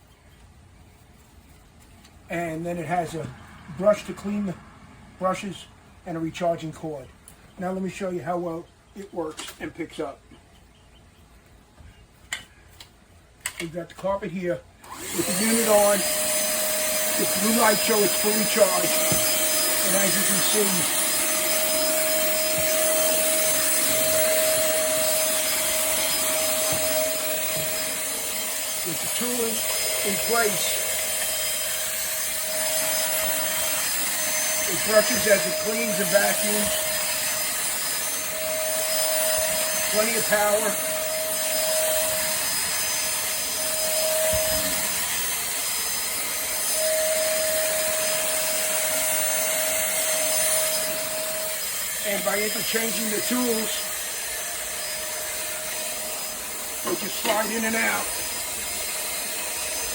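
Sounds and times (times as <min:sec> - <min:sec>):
handheld vacuum cleaner running: 0:14.8 - 0:59.9.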